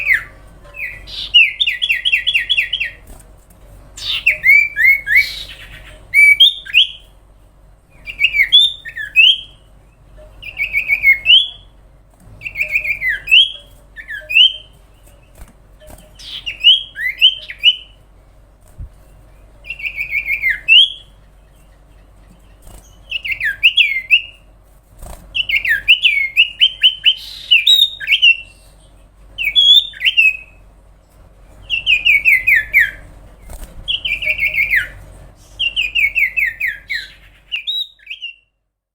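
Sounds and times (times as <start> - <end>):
bird singing sliding chirps: 12.4 - 18.0.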